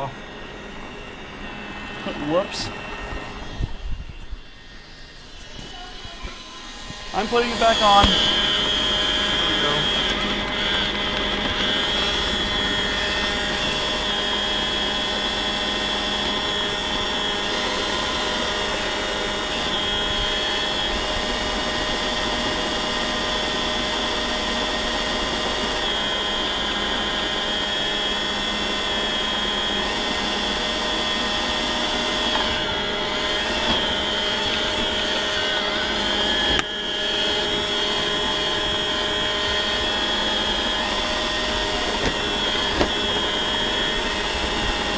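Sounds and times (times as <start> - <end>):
robot vacuum whirring: 0.0 - 44.9.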